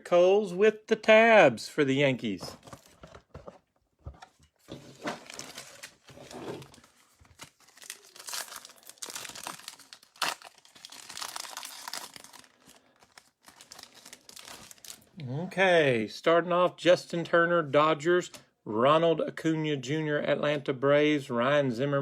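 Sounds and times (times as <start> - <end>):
plastic wrapper tearing and crinkling: 4.9 - 15.1.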